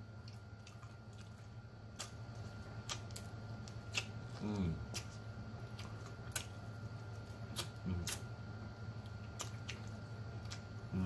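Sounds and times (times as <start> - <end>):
chewing mouth clicks and smacks: 0.2 - 8.3, 9.0 - 10.9.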